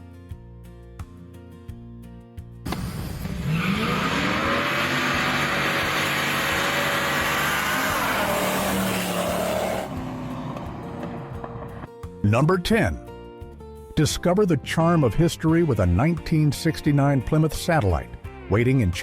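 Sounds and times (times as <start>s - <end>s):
car engine revving: 2.7s - 11.9s.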